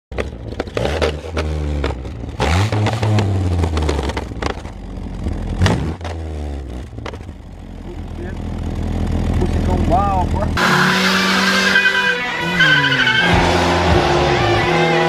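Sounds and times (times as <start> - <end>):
exhaust pops and crackles: 0.1 - 10.6
car engine revving: 0.1 - 15.0.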